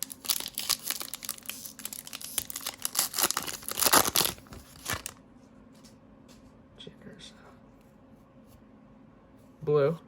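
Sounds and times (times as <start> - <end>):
wrapper crinkling and tearing: 0.0 - 5.2.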